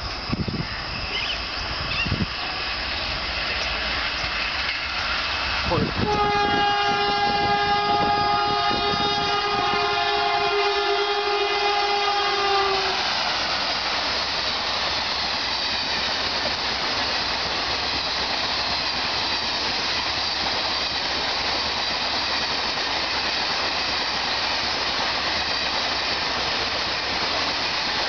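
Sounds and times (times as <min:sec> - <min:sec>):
train coaches rushing past: 0:00.0 - 0:28.0
locomotive horn: 0:05.7 - 0:13.2.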